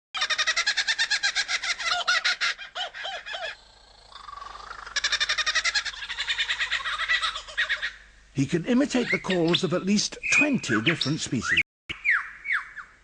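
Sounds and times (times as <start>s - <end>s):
kookaburra laughing call: 0.2s - 8.1s.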